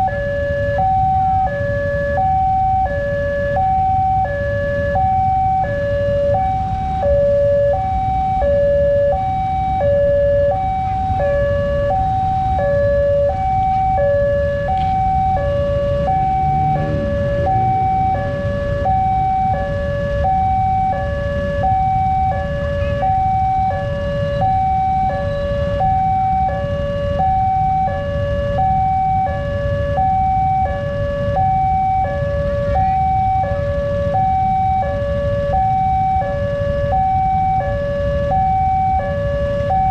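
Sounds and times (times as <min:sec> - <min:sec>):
level crossing two-tone alarm: 0:00.0 - 0:39.9
steady low rumble: 0:11.7 - 0:20.2.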